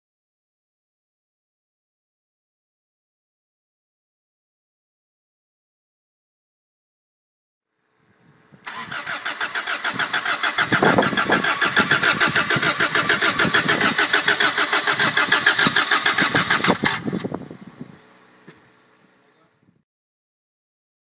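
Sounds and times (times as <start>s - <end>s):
engine cranking on starter motor: 8.6s - 17.4s.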